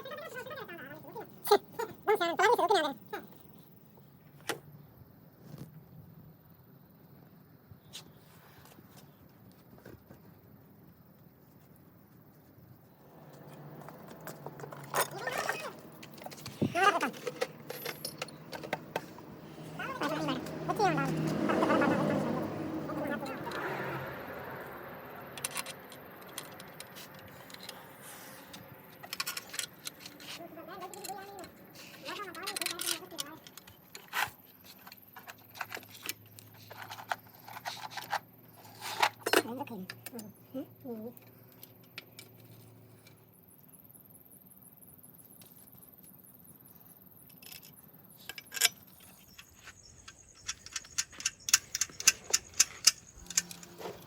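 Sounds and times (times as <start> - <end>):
faint steady background noise: 0.0 - 54.0
metal tools clinking: 13.3 - 19.2, 48.2 - 54.0.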